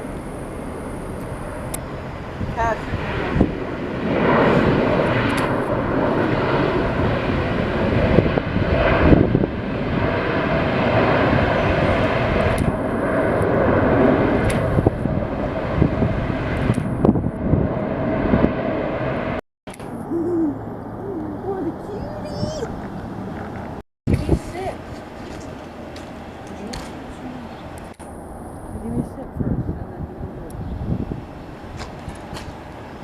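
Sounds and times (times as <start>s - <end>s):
jet engines roaring with whine: 0.0s - 33.0s.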